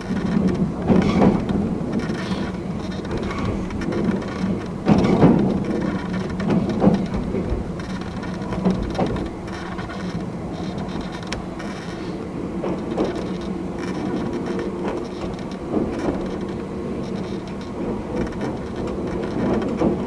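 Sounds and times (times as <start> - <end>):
electric train running rumble: 0.0 - 20.0.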